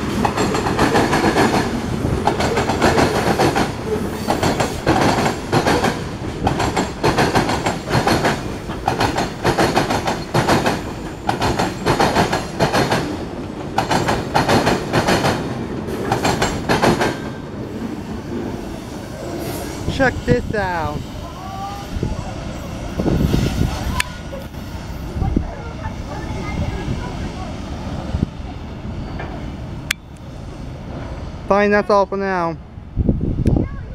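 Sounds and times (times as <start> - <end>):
wheels clacking over rail joints: 0.0 - 17.4
freight train rumble: 0.0 - 33.9.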